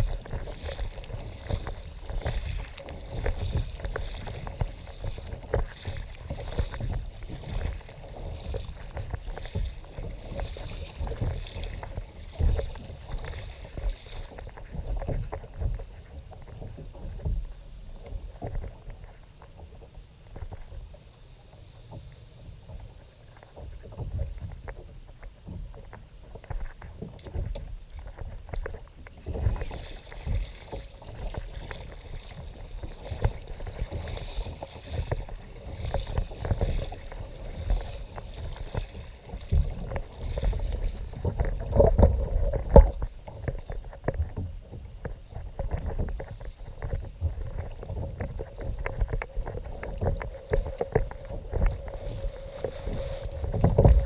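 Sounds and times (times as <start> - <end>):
water lapping against hull: 0.0 - 54.0
small knocks on hull: 23.4 - 52.0
low rumble: 45.4 - 54.0.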